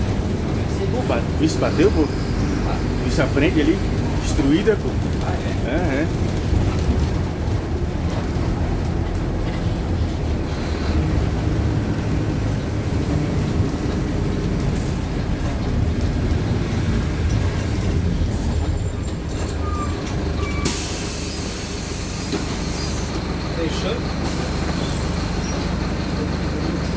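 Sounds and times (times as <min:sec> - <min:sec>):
bus diesel engine running: 0:00.0 - 0:26.9
air brake hiss: 0:20.4 - 0:23.1.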